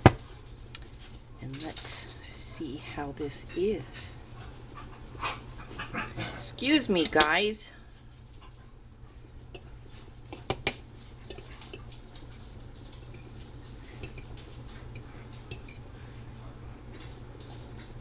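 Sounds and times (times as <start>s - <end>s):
cutlery clinking on a plate: 7.0s - 7.4s, 10.3s - 15.9s.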